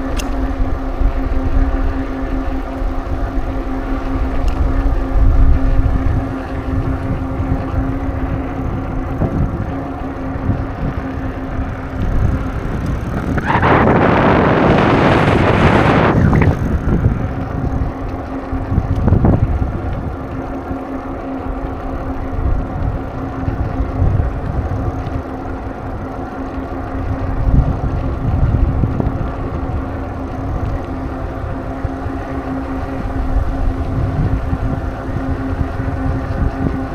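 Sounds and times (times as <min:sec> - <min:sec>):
rush of noise: 0:00.0 - 0:18.0
steady hum: 0:00.0 - 0:36.9
wind buffeting microphone: 0:00.0 - 0:36.9.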